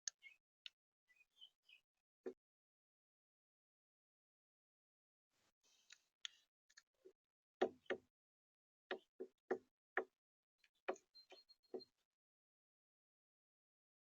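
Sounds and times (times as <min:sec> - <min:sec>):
sharp knocks and ticks: 0:07.6 - 0:08.1, 0:08.9 - 0:10.1.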